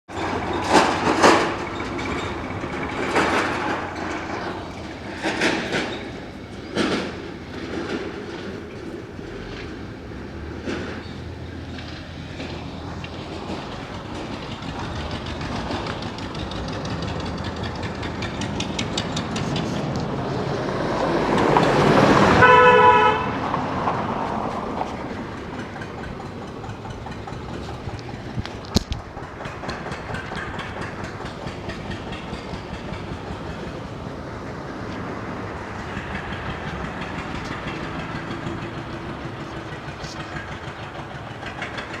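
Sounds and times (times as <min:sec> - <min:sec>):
vehicle passing: 0:00.2 - 0:28.8
vehicle horn toot: 0:22.4 - 0:23.4.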